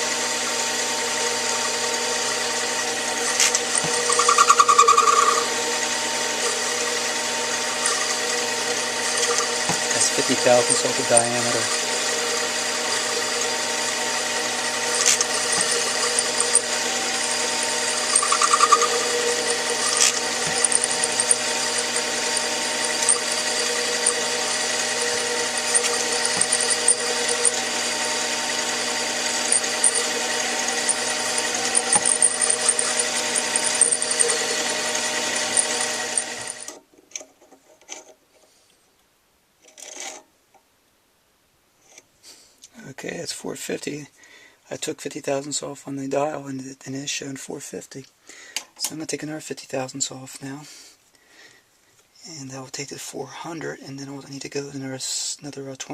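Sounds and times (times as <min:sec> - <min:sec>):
metal lathe motor whine: 0:00.0 - 0:36.8.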